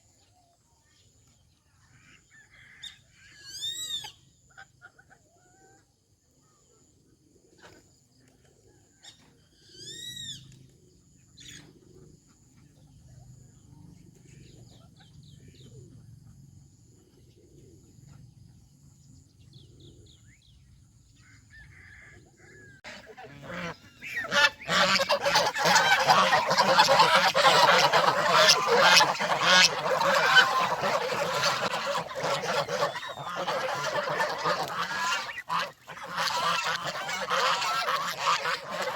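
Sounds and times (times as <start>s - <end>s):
geese honking: 22.8s - 38.9s.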